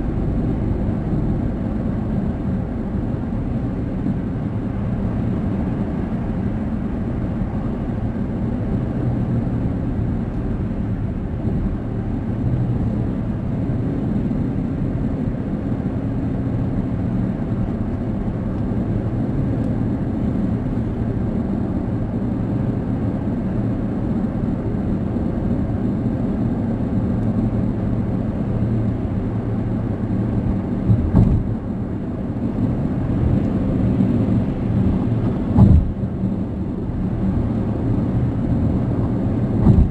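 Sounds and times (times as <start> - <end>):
car tyres and engine rumbling: 0.0 - 39.9
brief thump: 30.9 - 31.5, 35.5 - 36.0, 39.6 - 39.9.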